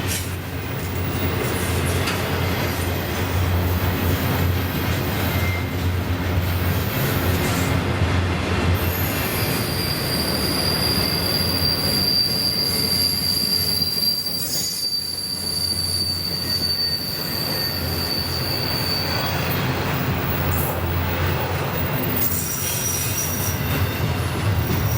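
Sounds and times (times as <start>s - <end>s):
freight train cars rumbling: 0.0s - 24.9s
high-pitched wheel squeal: 5.2s - 5.8s, 8.8s - 24.9s.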